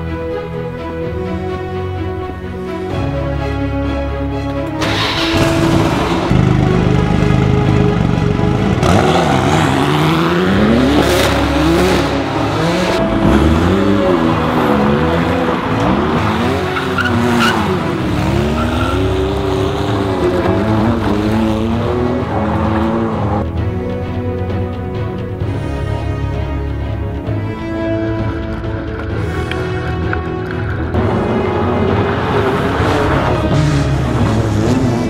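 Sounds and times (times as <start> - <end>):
car engine revving hard: 4.8 - 23.4, 31.0 - 35.0
tyres squealing on concrete: 14.7 - 19.8.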